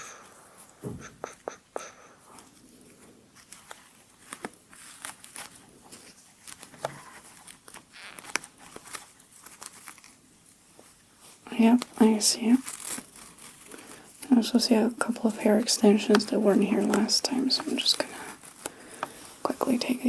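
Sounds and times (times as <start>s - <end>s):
soft crinkling rustles: 2.2s - 20.0s.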